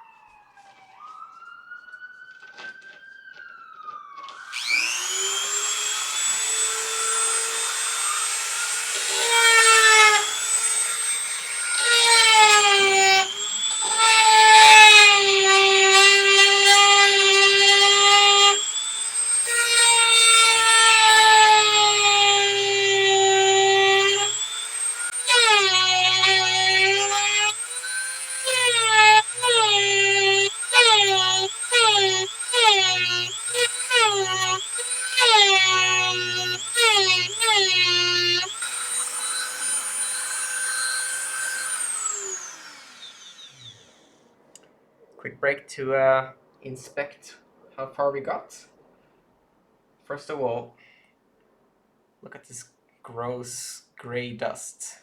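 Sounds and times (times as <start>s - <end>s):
rotary tool grinding whine: 4.3s - 44.1s.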